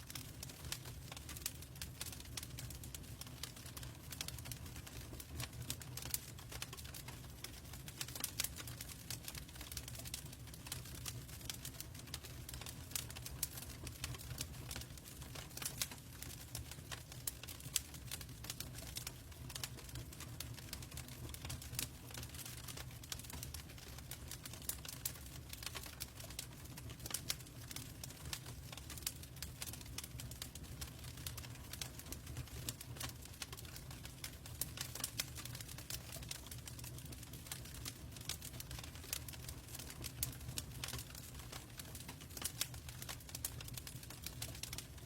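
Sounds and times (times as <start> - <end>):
log fire crackling: 0.0 - 45.0.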